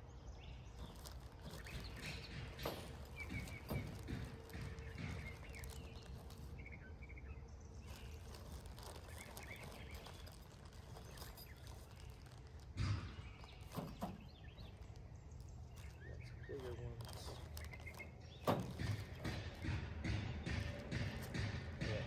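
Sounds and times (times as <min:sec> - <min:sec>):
low steady background rumble: 0:00.0 - 0:22.0
sharp knocks: 0:01.7 - 0:06.1, 0:18.4 - 0:22.0.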